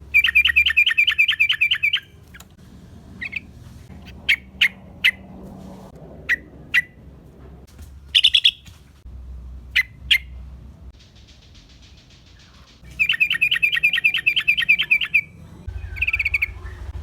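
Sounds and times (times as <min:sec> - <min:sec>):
bird chirping: 0:00.0 - 0:02.5, 0:03.2 - 0:05.2, 0:08.1 - 0:08.7, 0:11.0 - 0:17.0
faint buzzy bird trill: 0:00.0 - 0:02.5, 0:08.1 - 0:08.7, 0:11.0 - 0:17.0.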